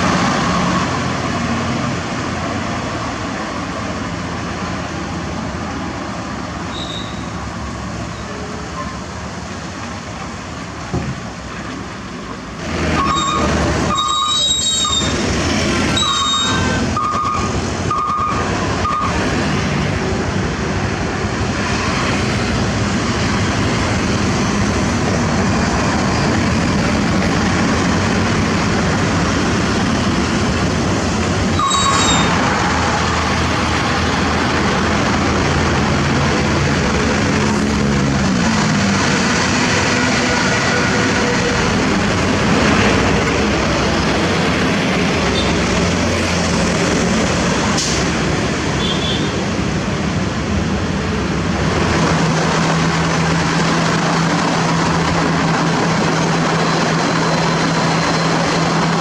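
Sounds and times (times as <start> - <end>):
diesel machinery rumbling: 0.0 - 59.0
high-pitched metallic squeals: 6.7 - 7.4, 13.0 - 15.2, 15.8 - 17.5, 31.6 - 32.4.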